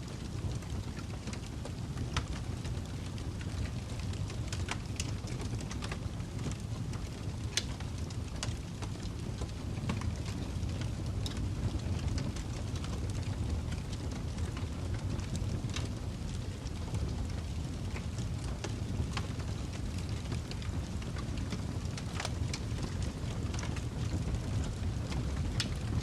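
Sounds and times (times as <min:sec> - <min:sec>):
burning wood crackling and popping: 0:00.0 - 0:26.0
low rumble of flames: 0:00.0 - 0:26.0.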